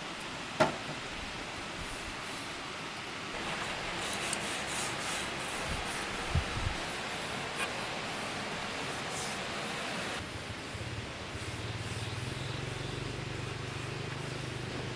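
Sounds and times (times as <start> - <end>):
wood being sanded: 3.4 - 10.2.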